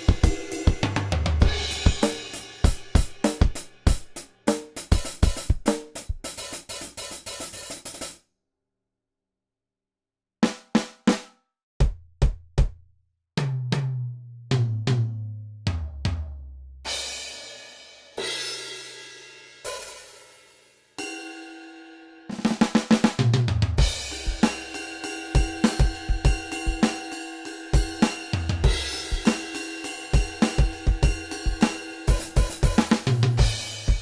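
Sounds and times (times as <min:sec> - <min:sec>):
ringing cymbal hits: 0:00.0 - 0:04.4
drum beat: 0:00.0 - 0:08.2, 0:11.8 - 0:12.8, 0:22.5 - 0:27.0, 0:27.8 - 0:34.0.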